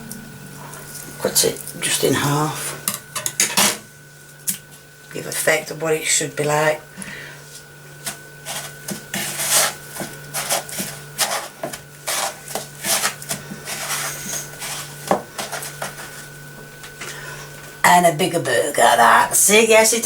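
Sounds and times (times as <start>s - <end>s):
steady low hum: 0.0s - 20.0s
hands scraping burger patties: 8.0s - 16.3s.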